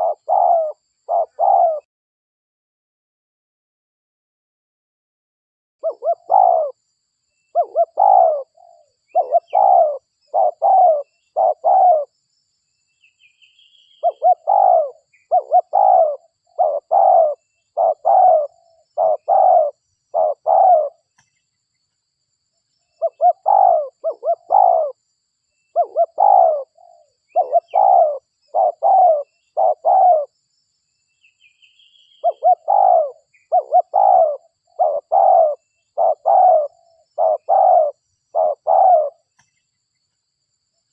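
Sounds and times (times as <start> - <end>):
dove cooing loudly: 0.0 - 1.9, 5.8 - 6.8, 7.5 - 12.1, 14.0 - 21.1, 23.0 - 25.0, 25.7 - 30.3, 32.2 - 39.3.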